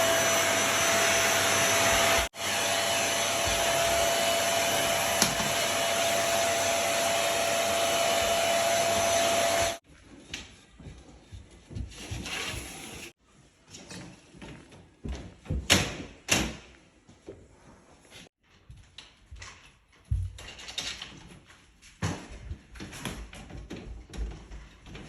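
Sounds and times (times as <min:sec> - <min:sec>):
electric motor whining: 0:00.0 - 0:09.8.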